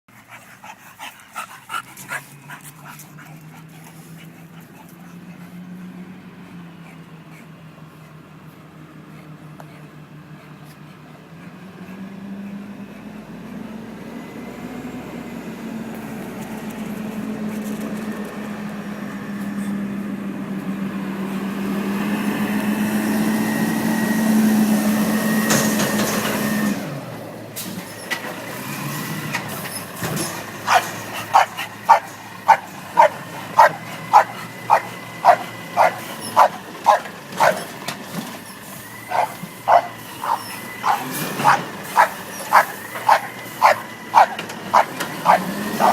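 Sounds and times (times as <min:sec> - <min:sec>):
garbage truck engine drone: 0:00.1 - 0:45.9
dog barking: 0:30.7 - 0:37.7, 0:39.1 - 0:45.9.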